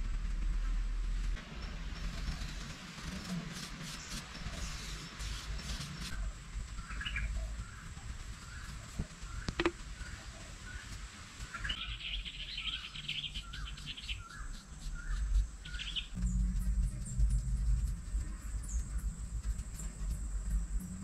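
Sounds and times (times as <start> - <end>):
low background rumble: 0.0 - 21.0
bird chirping: 11.5 - 21.0.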